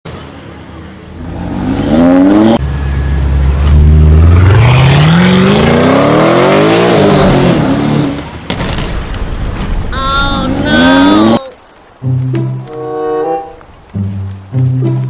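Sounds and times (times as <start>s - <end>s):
car engine revving: 1.2s - 8.3s.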